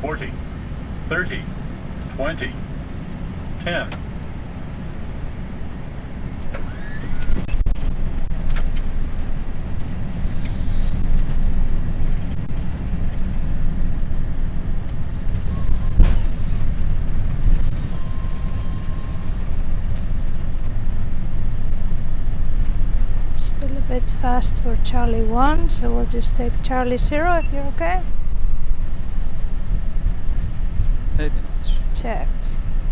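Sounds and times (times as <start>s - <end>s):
rumble of wheels and jet engines: 0.0s - 32.9s.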